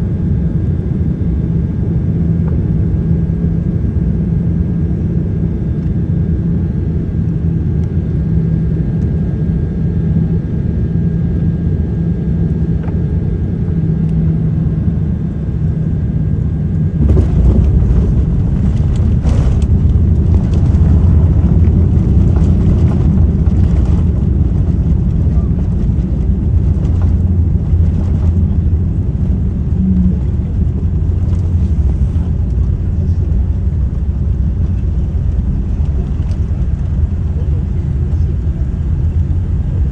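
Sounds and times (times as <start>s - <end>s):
aircraft cabin drone: 0.0s - 39.9s
wheels rumbling on runway: 11.5s - 39.9s.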